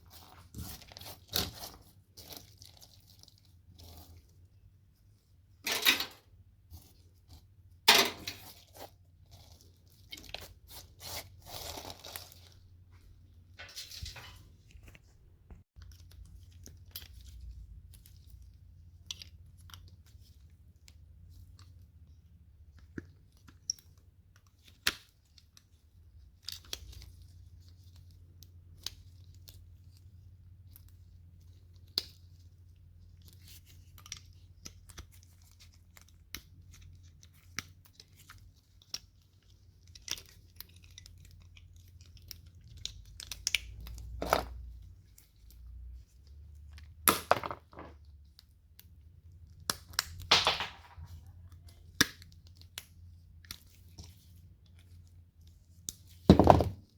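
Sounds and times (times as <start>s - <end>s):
tearing and scraping: 0.0s - 4.4s, 7.9s - 12.6s
clicks and knocks of parts: 5.6s - 6.3s, 7.9s - 8.6s.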